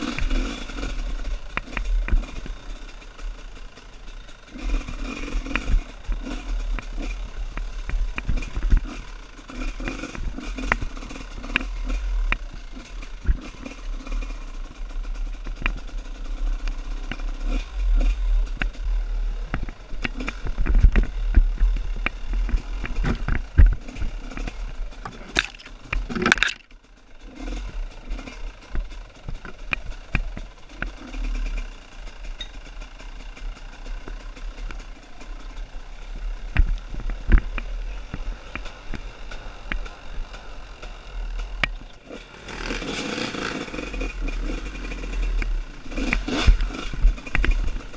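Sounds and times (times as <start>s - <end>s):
motorcycle engine running: 0.0s - 47.9s
knocks and clatter: 19.5s - 26.7s.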